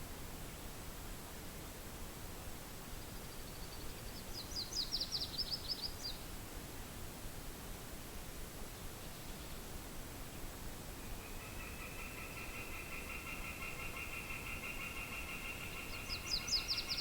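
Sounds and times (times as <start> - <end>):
steady wind hiss: 0.0 - 17.0
small songbird singing: 3.0 - 6.3, 11.0 - 17.0.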